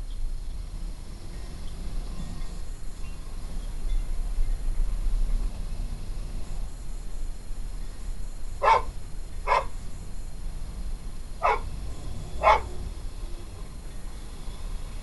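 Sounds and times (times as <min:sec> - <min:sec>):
dog barking: 0:08.6 - 0:09.8, 0:11.4 - 0:11.7, 0:12.4 - 0:12.8.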